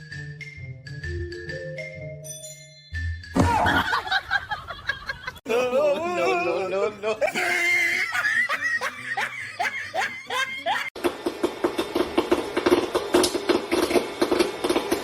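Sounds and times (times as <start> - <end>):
person laughing: 3.4 - 11.0
rapid clicks and knocks: 11.0 - 15.0.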